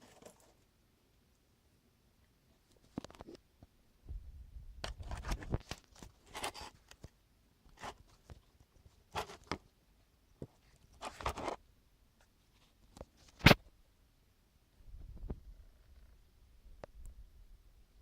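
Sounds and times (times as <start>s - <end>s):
hands handling materials: 0.0s - 0.7s, 4.8s - 9.8s, 10.4s - 11.6s.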